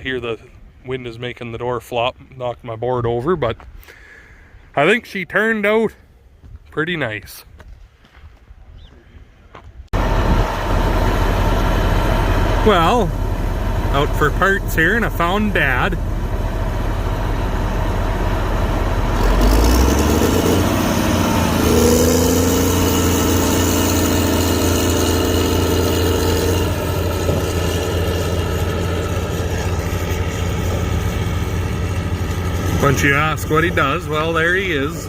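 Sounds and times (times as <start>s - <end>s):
vehicle engine running: 9.9s - 35.0s.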